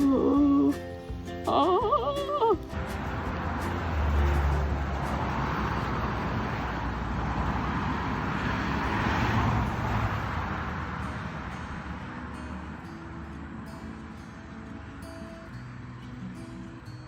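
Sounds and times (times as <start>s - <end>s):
motor vehicle rushing noise: 2.6s - 15.2s.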